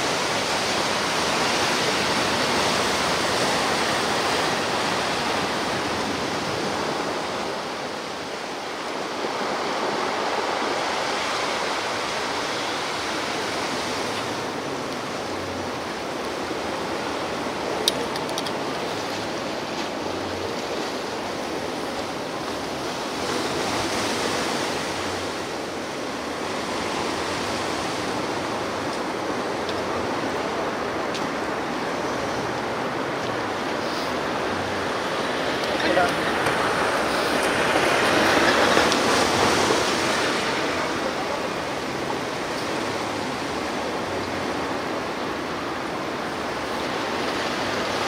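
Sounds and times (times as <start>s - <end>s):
ocean surf washing ashore: 0.0s - 48.0s.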